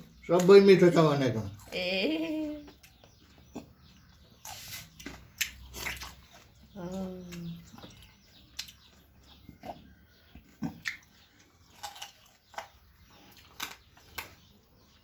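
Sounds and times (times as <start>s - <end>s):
mouth smacks and clicks: 2.6s - 6.5s, 7.2s - 14.4s.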